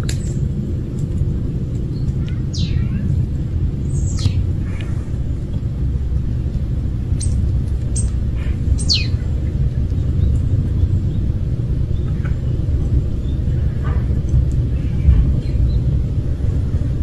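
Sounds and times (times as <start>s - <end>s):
steady low rumble: 0.0s - 17.0s
high bird chirps: 1.8s - 3.2s, 6.2s - 16.7s.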